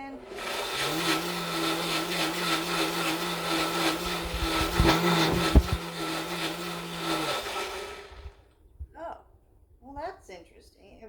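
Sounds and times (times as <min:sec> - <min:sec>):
blender motor hum: 0:00.0 - 0:08.4
sauce churning in blender: 0:00.0 - 0:08.4
low thumps: 0:02.9 - 0:06.0.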